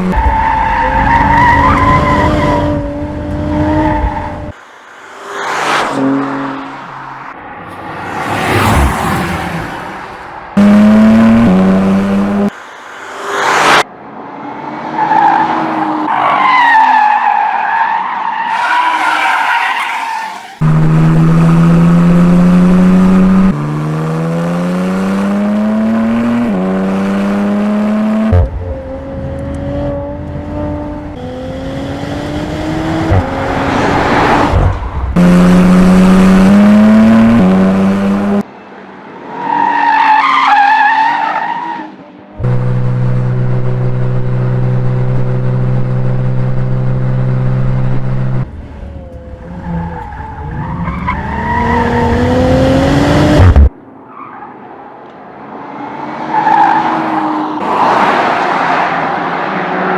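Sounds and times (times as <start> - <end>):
car engine accelerating: 10.6 - 13.8, 20.6 - 38.4, 42.4 - 53.7
tyres squealing: 16.3 - 20.6.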